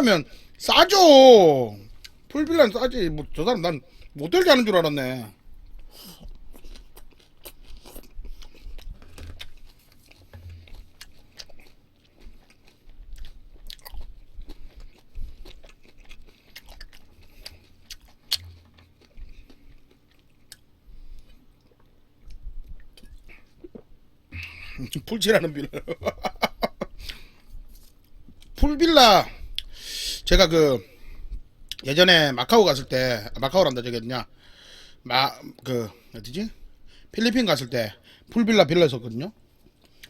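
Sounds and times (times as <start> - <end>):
person chewing meat: 1.8 - 2.3, 5.4 - 28.6, 29.3 - 30.0, 39.5 - 40.0
wet mouth clicks and smacks: 15.7 - 18.9.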